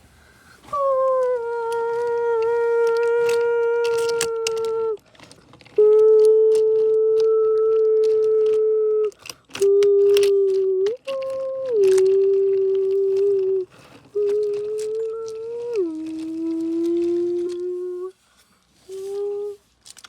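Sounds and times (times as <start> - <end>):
clicks and rattles: 0.6 - 18.1, 18.9 - 20.0.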